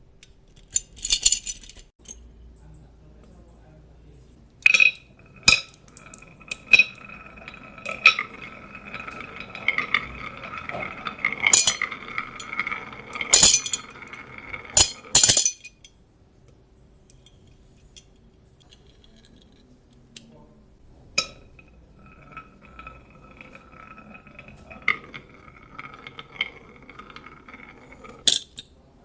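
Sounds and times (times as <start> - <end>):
marbles rolling hum: 4.6 - 15.8, 20.8 - 28.4
marbles clicking on track: 4.7 - 15.4, 21.2 - 28.6.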